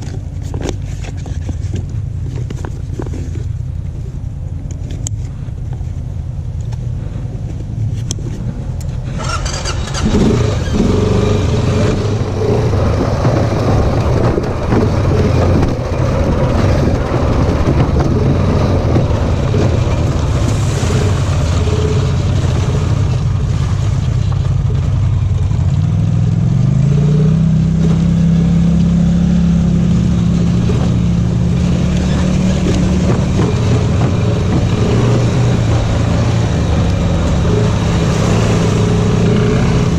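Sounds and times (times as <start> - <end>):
off-road vehicle engine: 0.0 - 39.9
rush of noise: 2.7 - 25.6.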